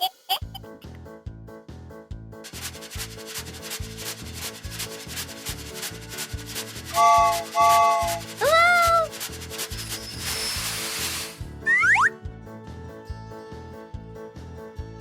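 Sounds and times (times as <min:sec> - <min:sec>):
scratchy rhythmic chugging: 0:02.4 - 0:11.5
short toots: 0:06.9 - 0:12.1.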